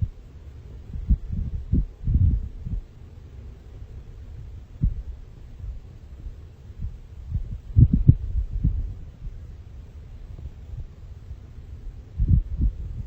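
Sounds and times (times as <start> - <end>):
wind buffeting microphone: 0.8 - 2.9, 4.8 - 5.1, 6.8 - 9.4, 12.1 - 13.0.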